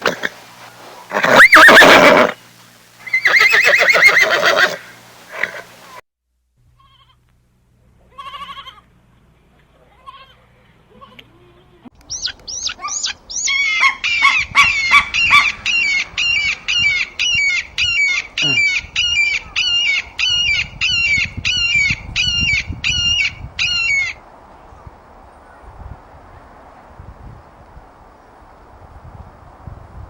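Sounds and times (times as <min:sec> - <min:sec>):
bird sharp high calls: 0:12.0 - 0:24.2.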